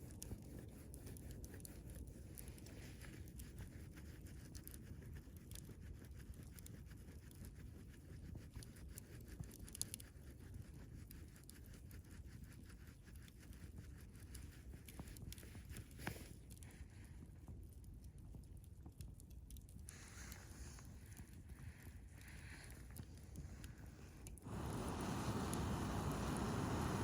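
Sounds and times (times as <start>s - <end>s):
campfire crackling: 18.9s - 27.0s.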